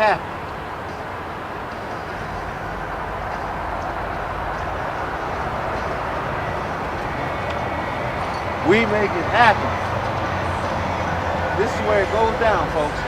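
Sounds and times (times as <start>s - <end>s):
freeway traffic roar: 0.0s - 13.0s.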